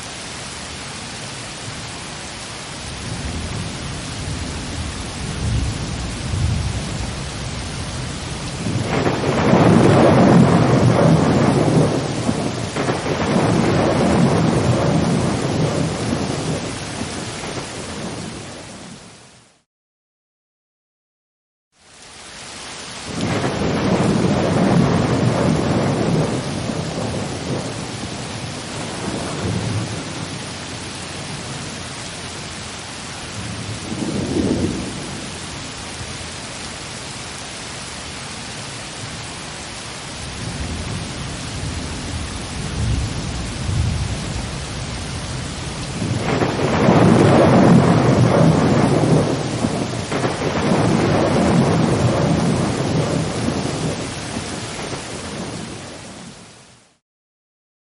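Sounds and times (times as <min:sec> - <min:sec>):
steady rain: 0:00.0 - 0:19.7, 0:21.7 - 0:57.0
thunder rumbling: 0:03.0 - 0:18.9, 0:23.1 - 0:32.4, 0:33.3 - 0:35.5, 0:40.2 - 0:56.4.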